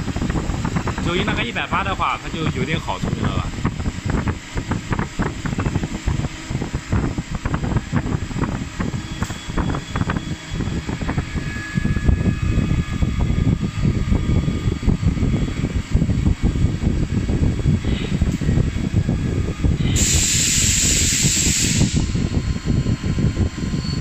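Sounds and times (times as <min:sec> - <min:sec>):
machine low rumble: 0:00.0 - 0:24.0
faint high whine: 0:17.0 - 0:24.0.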